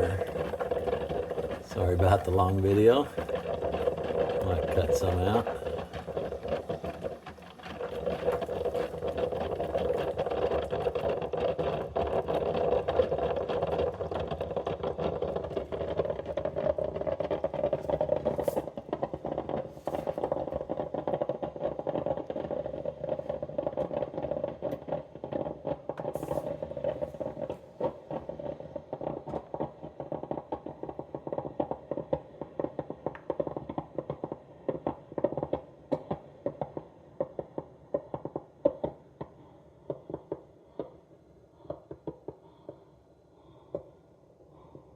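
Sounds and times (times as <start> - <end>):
coffee maker humming and rattling: 0.0 - 41.0.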